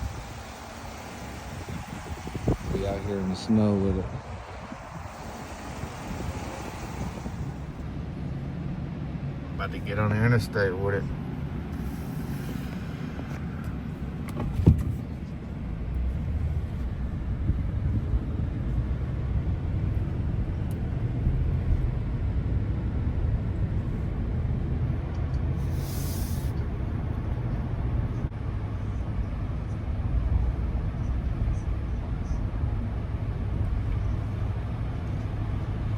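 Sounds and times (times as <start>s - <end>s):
pickup engine and tyre rumble: 0.0s - 35.9s
brief hiss: 11.7s - 13.6s, 25.6s - 26.6s.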